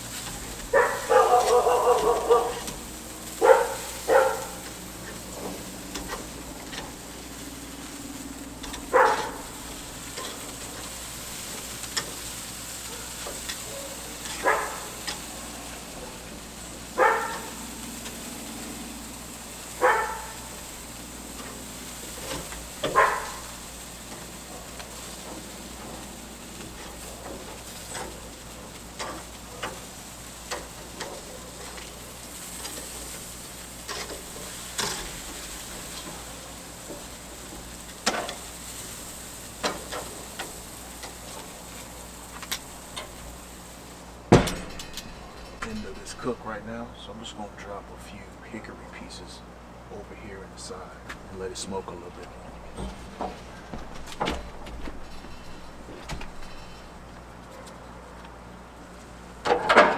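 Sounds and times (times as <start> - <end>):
meat sizzling over a fire: 0.0 - 47.4, 54.9 - 59.9
dog barking: 0.6 - 5.2, 8.6 - 9.7, 12.8 - 17.8, 19.7 - 20.7, 22.8 - 25.1, 57.5 - 58.2.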